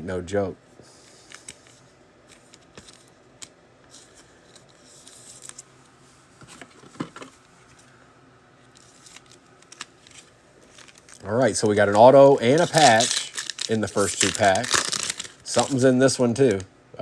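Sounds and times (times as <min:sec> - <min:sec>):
card packaging clicks: 0:11.9 - 0:15.8.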